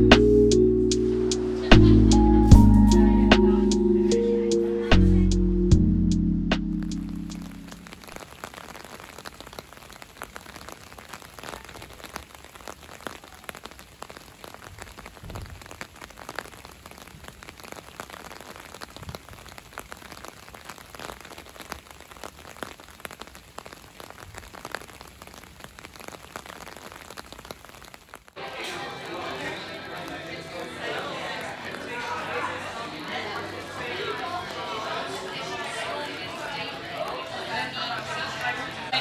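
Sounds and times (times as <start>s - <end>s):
steady rain falling: 0.0s - 5.5s, 6.2s - 39.0s.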